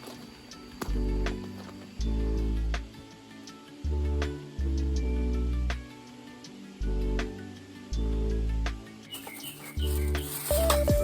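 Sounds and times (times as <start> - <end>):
music with sustained low notes: 0.0 - 11.0.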